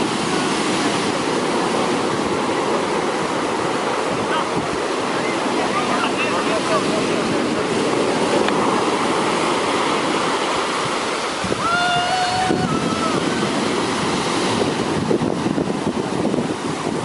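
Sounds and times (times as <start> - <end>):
surf breaking on beach: 0.0 - 17.0.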